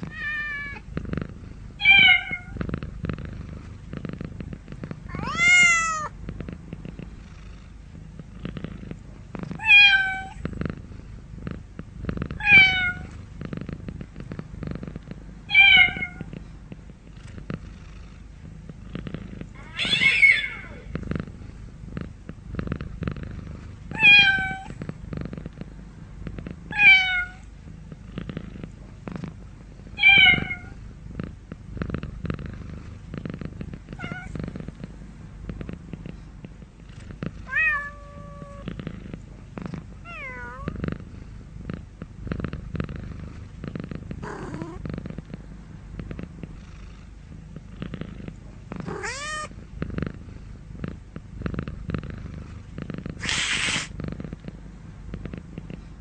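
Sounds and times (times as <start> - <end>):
cat purring: 0.0 - 56.0
cat meowing: 0.1 - 0.8, 5.1 - 6.1, 12.4 - 13.1, 19.6 - 20.8, 24.0 - 24.7, 26.7 - 27.4, 34.0 - 34.3, 37.5 - 38.6, 48.9 - 49.5.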